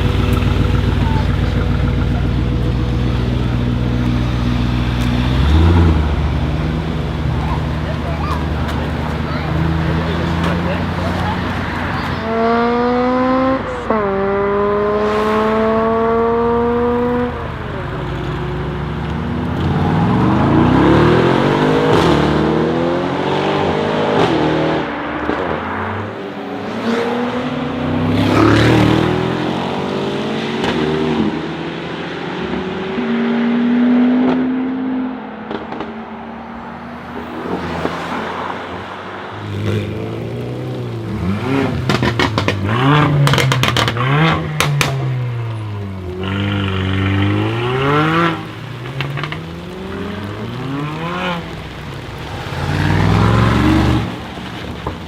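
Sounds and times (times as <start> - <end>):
exhaust cracks: 0.0 - 12.2, 36.9 - 55.0
car engine accelerating: 0.0 - 55.0.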